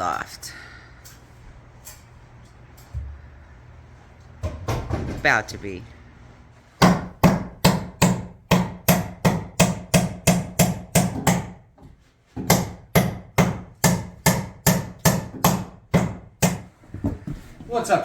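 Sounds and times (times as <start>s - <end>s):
hammer driving nails into wood: 6.8s - 11.6s, 12.4s - 16.7s.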